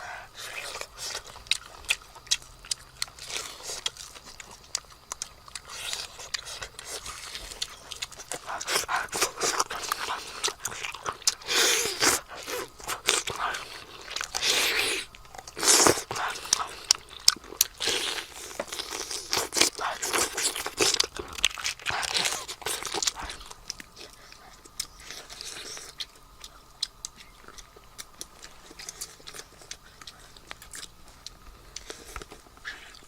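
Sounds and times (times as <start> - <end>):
crunching and tearing: 0.0 - 33.0.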